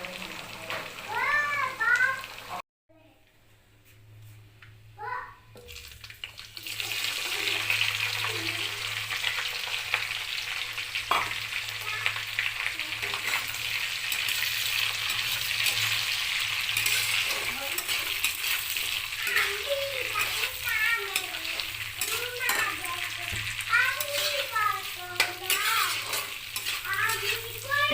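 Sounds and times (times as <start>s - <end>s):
chicken sizzling in hot oil: 0.0s - 2.6s, 5.0s - 27.9s.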